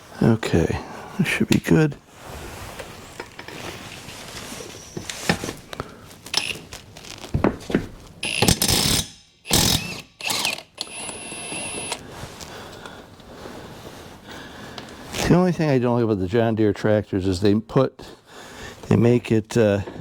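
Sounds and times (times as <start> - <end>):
hand tools clicking and clanking: 7.4 - 12.0.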